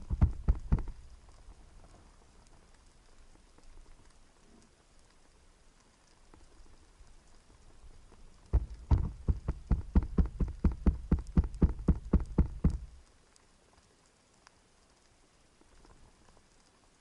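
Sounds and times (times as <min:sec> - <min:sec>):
rapid underwater knocks: 0:00.0 - 0:01.1, 0:08.5 - 0:13.0.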